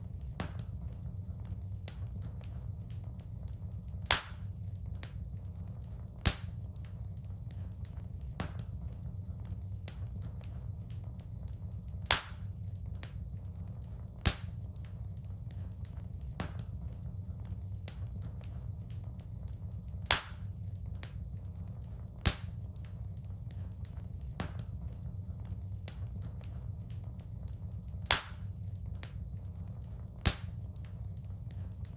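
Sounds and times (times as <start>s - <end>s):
low fire rumble: 0.0s - 31.9s
wood fire crackling: 0.0s - 31.9s
loud sharp pops: 4.1s - 4.4s, 6.2s - 6.5s, 12.1s - 12.4s, 14.2s - 14.5s, 20.0s - 20.4s, 22.2s - 22.5s, 28.0s - 28.4s, 30.2s - 30.6s.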